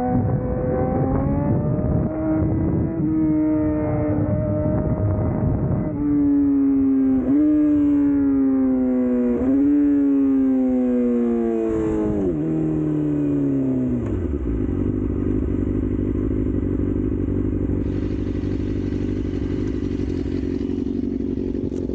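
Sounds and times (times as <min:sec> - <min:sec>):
motorcycle engine decelerating: 0:00.0 - 0:21.9
motorcycle engine idling: 0:13.9 - 0:21.9.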